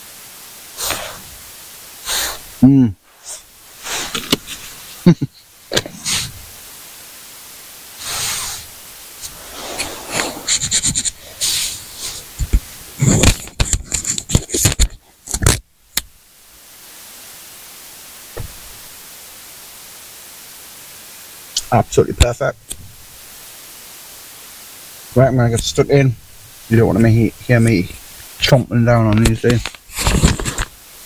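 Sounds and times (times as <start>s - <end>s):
crackling handling sounds: 3.1s - 5.1s, 8.0s - 16.2s, 25.2s - 30.9s.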